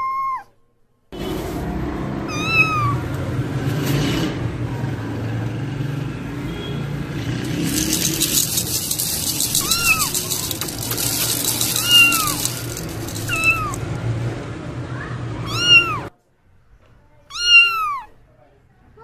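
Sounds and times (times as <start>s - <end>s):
kitten mewing: 2.3s - 3.1s, 15.4s - 16.1s, 17.3s - 18.1s.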